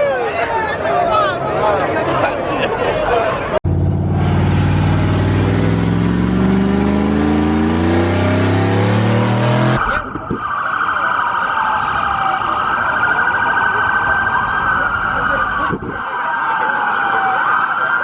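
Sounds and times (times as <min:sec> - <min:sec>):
car engine accelerating: 0:03.6 - 0:10.0
siren wailing: 0:04.7 - 0:18.0.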